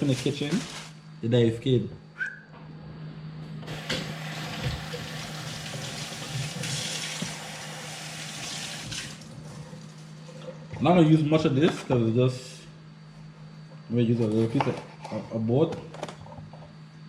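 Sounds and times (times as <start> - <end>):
tap water running into sink: 3.7 - 9.3.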